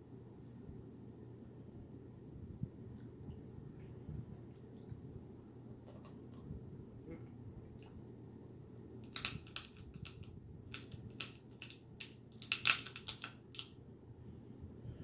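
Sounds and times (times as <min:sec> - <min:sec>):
crab shells cracking: 0:09.0 - 0:13.7.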